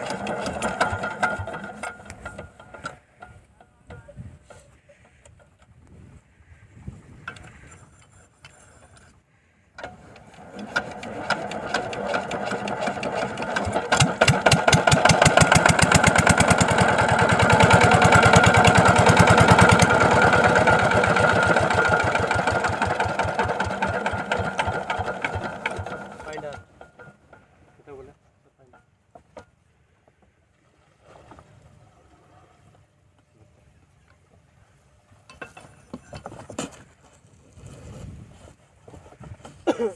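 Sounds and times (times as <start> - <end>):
diesel engine starting and running: 0.0 - 3.0, 9.8 - 27.3.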